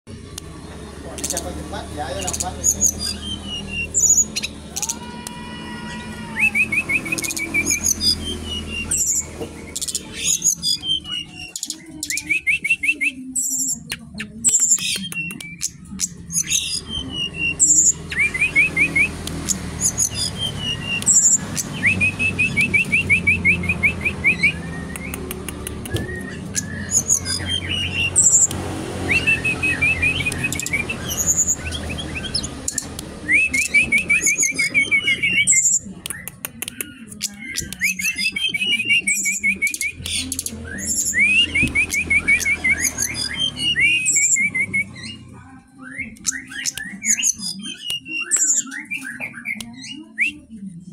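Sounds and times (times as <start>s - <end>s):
flycatcher singing: 0.1s - 50.4s
clicks: 19.1s - 19.7s, 24.7s - 27.4s.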